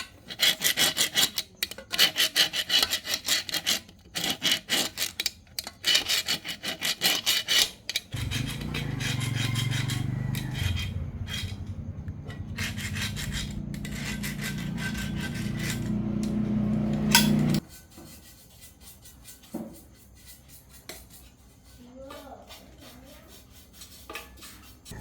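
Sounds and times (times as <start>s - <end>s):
grinding against metal: 8.1s - 17.6s
motor-driven tool humming: 12.6s - 17.6s.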